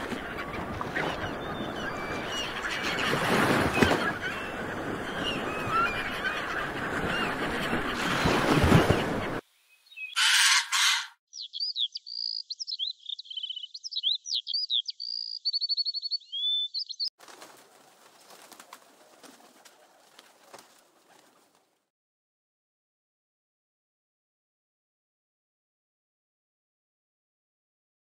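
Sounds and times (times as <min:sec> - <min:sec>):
harsh bird calls: 0:00.0 - 0:17.1
bird song whistles and chirps: 0:09.7 - 0:10.4, 0:11.3 - 0:17.1.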